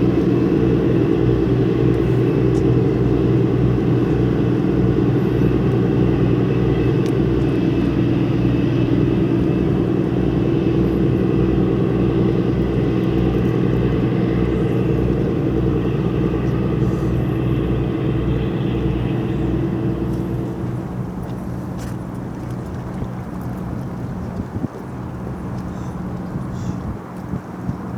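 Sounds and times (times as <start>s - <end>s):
large engine droning: 0.0s - 27.9s.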